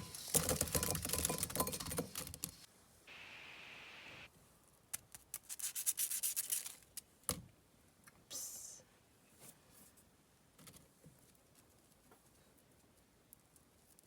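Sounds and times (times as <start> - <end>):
brief hiss: 3.1 - 4.3.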